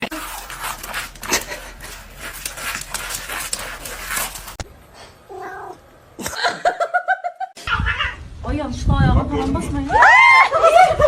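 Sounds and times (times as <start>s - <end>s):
pet panting: 0.2s - 4.6s
pet whining: 5.3s - 5.8s.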